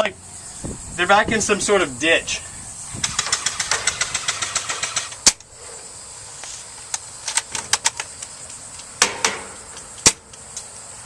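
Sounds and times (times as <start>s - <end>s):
airsoft gun shots: 3.0s - 5.4s.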